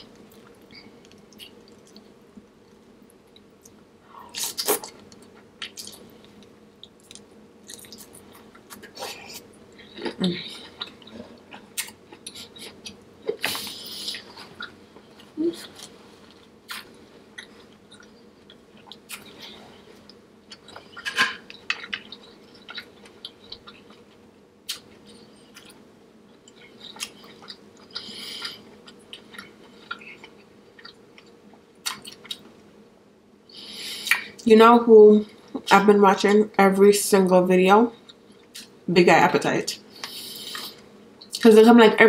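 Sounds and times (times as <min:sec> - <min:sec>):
person chewing and smacking: 0:00.1 - 0:03.8, 0:04.4 - 0:32.5.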